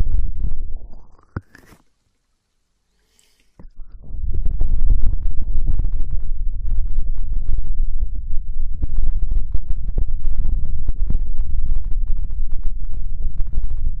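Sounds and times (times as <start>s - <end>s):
hands rubbing on microphone: 3.0s - 3.7s.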